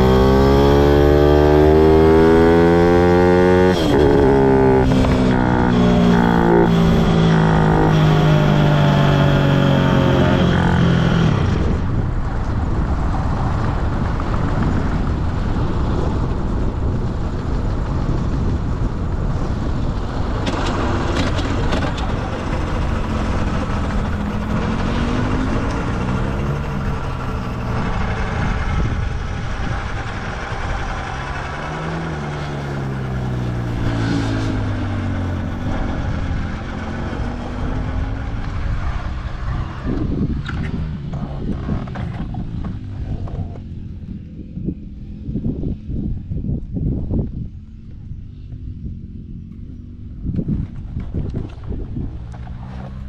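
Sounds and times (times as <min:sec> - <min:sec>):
pit bike engine revving: 0:00.0 - 0:11.9, 0:20.3 - 0:43.7
wind rush on microphone: 0:00.0 - 0:53.0.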